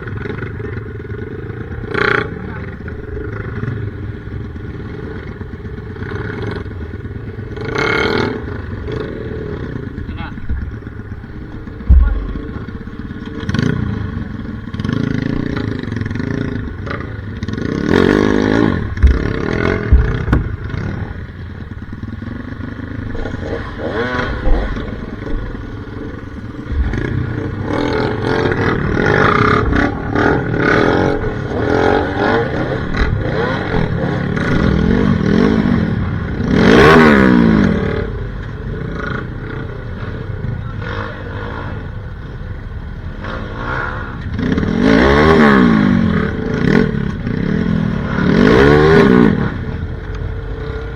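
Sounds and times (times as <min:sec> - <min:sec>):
knocks and clatter from bike: 0:00.0 - 0:40.3
motorcycle engine revving: 0:00.0 - 0:50.9.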